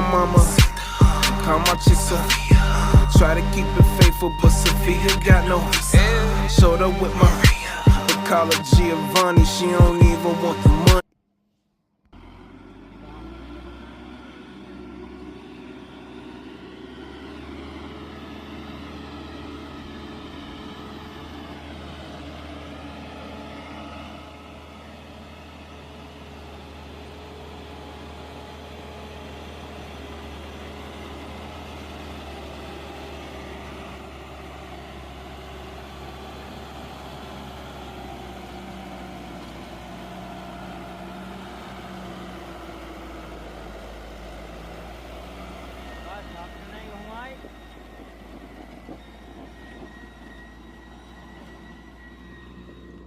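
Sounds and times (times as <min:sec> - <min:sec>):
tractor diesel engine running: 0:00.0 - 0:11.1, 0:12.1 - 0:53.0.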